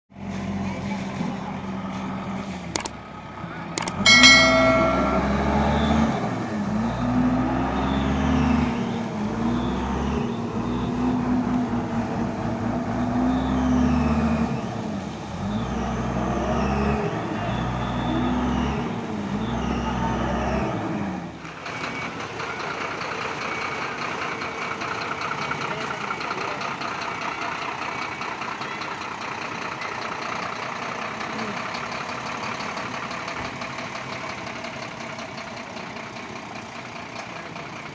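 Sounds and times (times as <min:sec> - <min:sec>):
heavy vehicle engine revving: 0:05.5 - 0:26.4.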